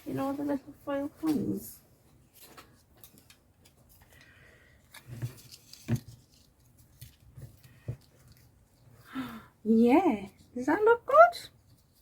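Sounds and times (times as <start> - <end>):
faint rustling of craft items: 0.0 - 12.0.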